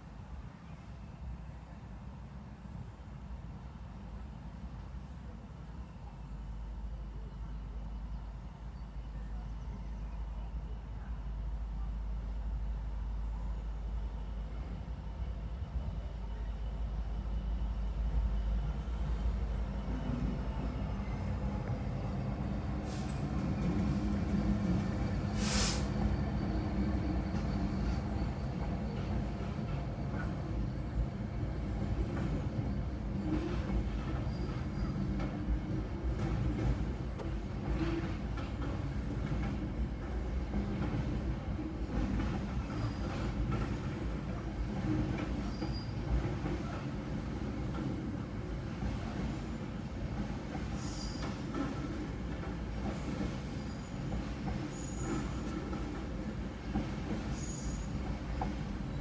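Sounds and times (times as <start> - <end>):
freight train rumbling: 1.6 - 59.0
short burst of hiss: 25.3 - 26.0
high wheel squeal: 50.8 - 51.5, 57.3 - 59.0.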